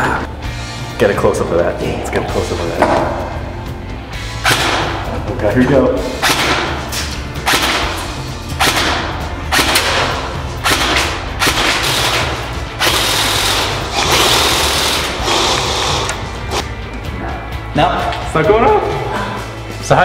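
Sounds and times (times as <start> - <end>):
airsoft gun shots: 4.4 - 5.0, 6.2 - 6.8, 7.4 - 8.0, 8.6 - 12.2.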